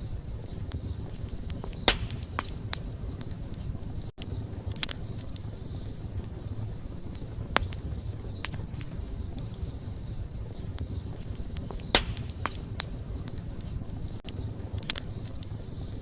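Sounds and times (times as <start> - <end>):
fire low rumble: 0.0 - 16.0
wood fire crackling and popping: 0.0 - 16.0.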